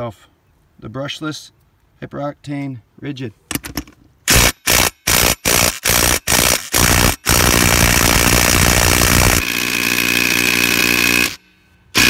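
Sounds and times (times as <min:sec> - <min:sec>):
impact driver hammering: 0:03.5 - 0:11.4.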